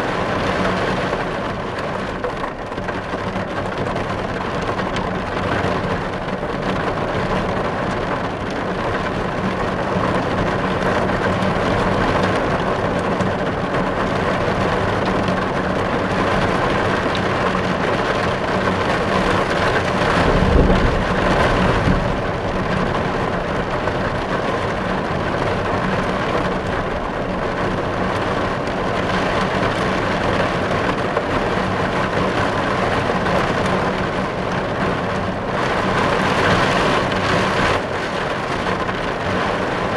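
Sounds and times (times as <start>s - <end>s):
heavy rain on car roof: 0.0s - 39.9s
low rumble: 19.5s - 25.2s.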